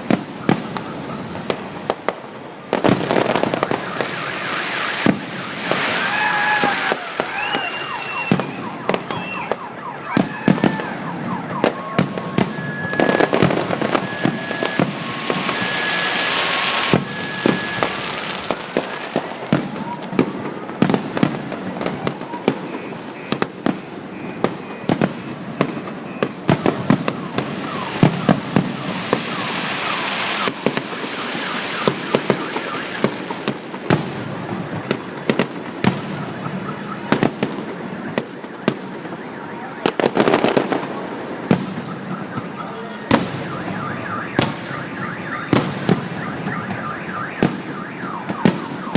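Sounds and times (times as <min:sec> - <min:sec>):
fireworks bangs and crackling: 0:00.0 - 0:48.9
whistling fireworks: 0:00.0 - 0:48.9
two-tone alarm beeping: 0:00.2 - 0:01.5, 0:07.6 - 0:10.2, 0:11.0 - 0:19.0, 0:21.8 - 0:33.5, 0:34.3 - 0:40.5, 0:41.6 - 0:48.9.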